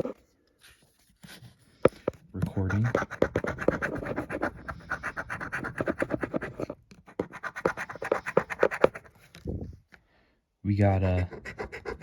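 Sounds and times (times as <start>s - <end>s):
scratching lottery ticket: 2.4s - 9.2s, 11.0s - 12.0s.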